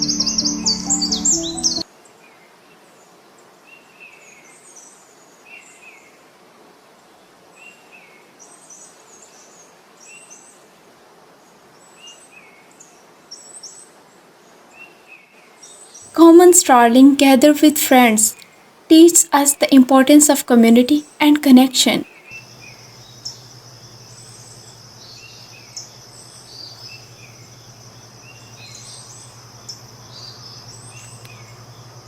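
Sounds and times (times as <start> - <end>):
birds chirping: 0.0 - 1.8
faint outdoor hiss: 0.0 - 32.0.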